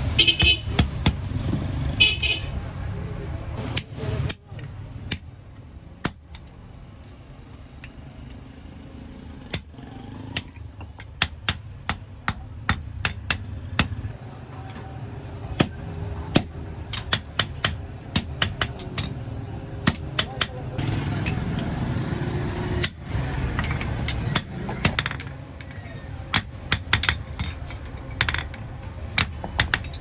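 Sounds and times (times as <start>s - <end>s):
hammer striking metal: 15.6s - 19.2s, 26.3s - 30.0s.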